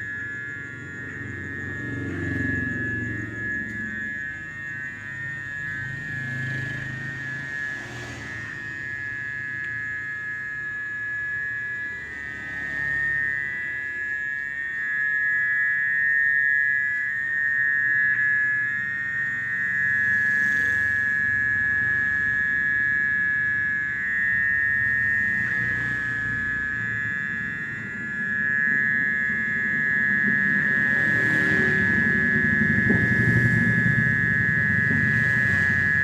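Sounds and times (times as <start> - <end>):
nocturnal animal chorus drone: 0.0 - 36.0
low rumble: 27.4 - 36.0.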